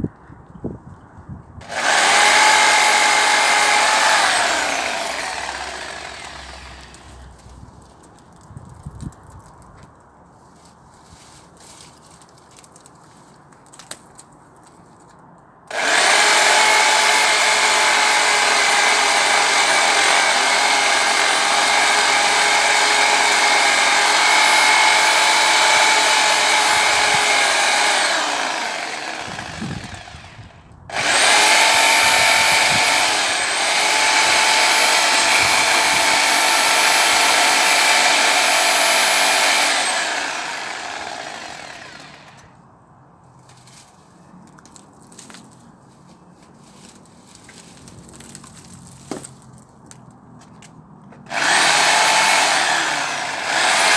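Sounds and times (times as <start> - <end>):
power saw cutting a tree: 1.6 - 7.7, 15.7 - 42.6, 51.3 - 53.9.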